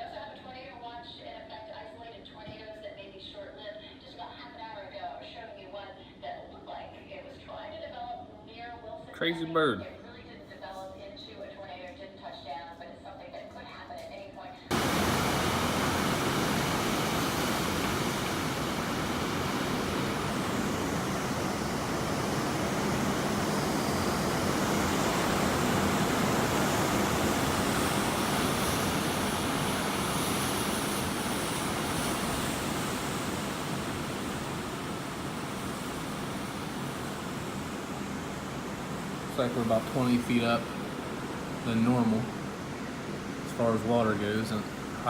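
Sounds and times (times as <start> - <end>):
storm-driven water: 14.7 - 43.6
gusting wind: 14.7 - 43.7.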